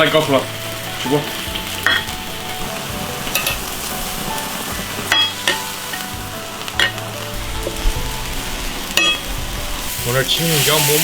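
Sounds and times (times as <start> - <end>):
sauce sizzling in a wok: 0.0 - 11.0
utensil clinking against wok: 0.9 - 6.1, 6.7 - 7.8, 8.9 - 9.3.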